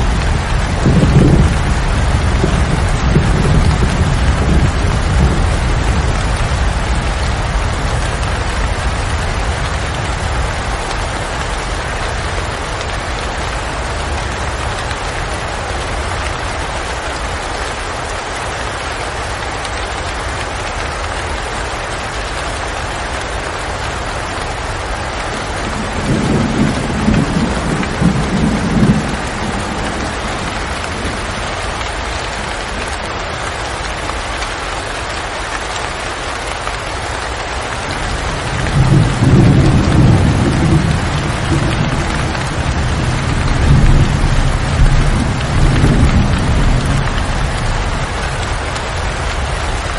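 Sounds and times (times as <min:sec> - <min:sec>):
low rumble of thunder: 0:00.0 - 0:16.2, 0:25.0 - 0:31.8, 0:38.0 - 0:49.9
steady rain: 0:00.0 - 0:49.9.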